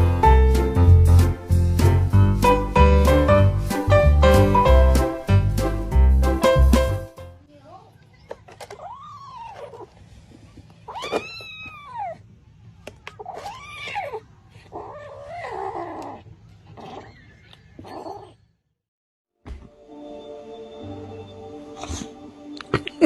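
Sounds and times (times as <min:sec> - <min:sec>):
cat meowing: 0:10.9 - 0:12.2, 0:13.2 - 0:14.2.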